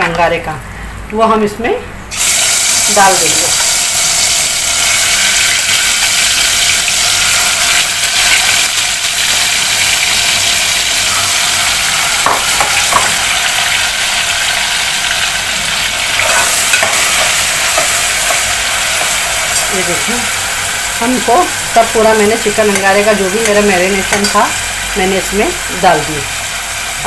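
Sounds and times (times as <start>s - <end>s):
food sizzling in hot oil: 2.1s - 27.0s
metal spoon clinking against pot: 22.7s - 24.5s.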